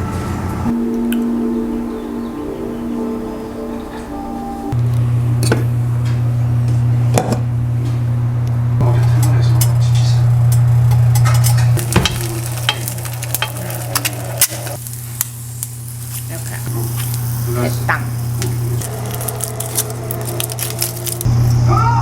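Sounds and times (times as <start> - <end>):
loud low hum: 0.0 - 22.0
food sizzling: 9.0 - 21.7.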